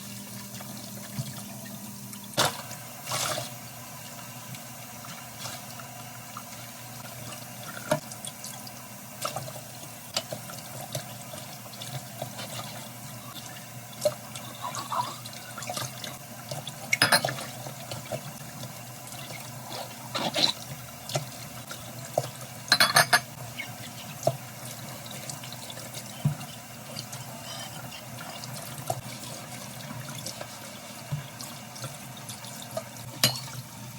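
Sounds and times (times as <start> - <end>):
tap running: 0.4 - 14.4, 20.1 - 33.6
dishes clinking: 16.9 - 17.4, 22.7 - 23.4, 33.1 - 33.6.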